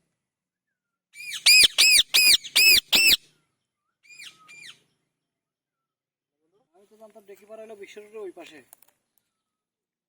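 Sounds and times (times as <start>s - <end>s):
parrot calling: 1.3s - 3.2s.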